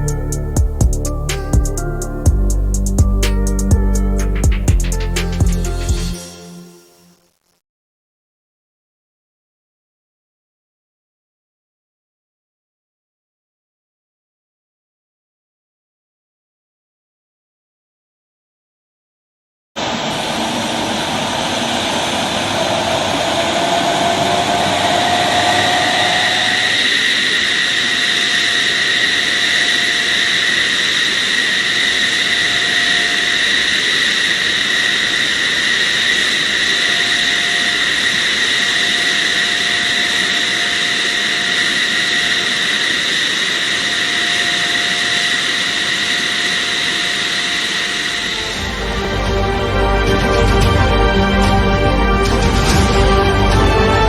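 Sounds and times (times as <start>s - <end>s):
fighter jet engine whine: 0.0s - 7.1s, 19.8s - 54.0s.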